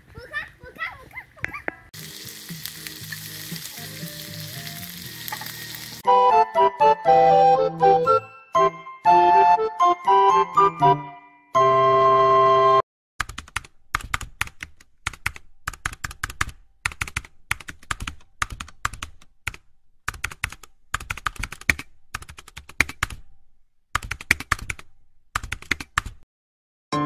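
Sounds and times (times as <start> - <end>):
keyboard typing: 13.2 - 23.3, 23.9 - 26.2.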